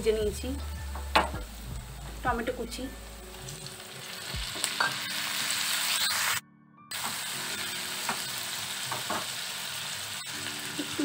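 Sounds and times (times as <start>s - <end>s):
tomatoes sizzling in oil: 0.0s - 11.0s.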